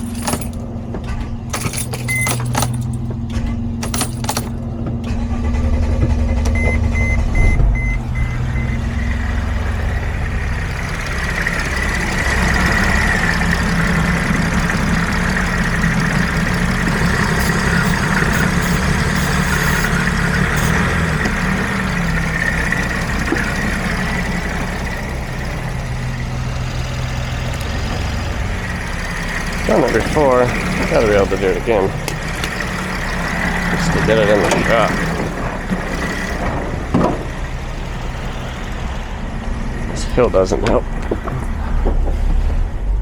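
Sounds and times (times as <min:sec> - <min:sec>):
diesel engine running at low revs: 0:00.0 - 0:43.0.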